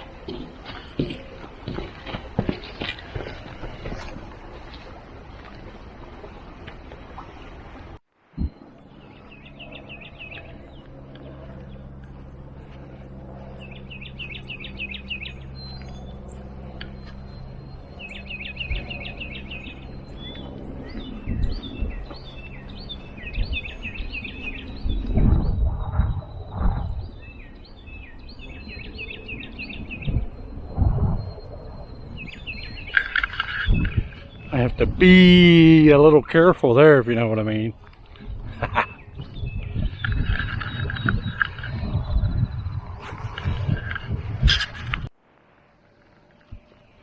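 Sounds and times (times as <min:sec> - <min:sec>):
low steady hum: 0:00.0 - 0:47.0
outdoor background noise: 0:00.0 - 0:47.0
songbirds singing: 0:08.4 - 0:44.9.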